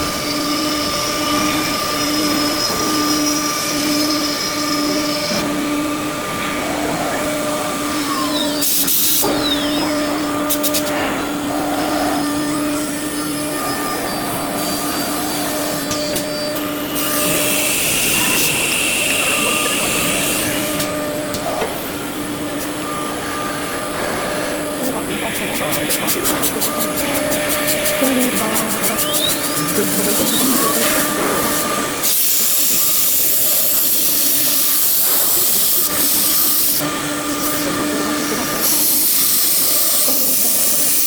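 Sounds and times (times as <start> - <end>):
loud hissing bursts: 0.0 - 21.2
machine motor whine: 0.0 - 41.0.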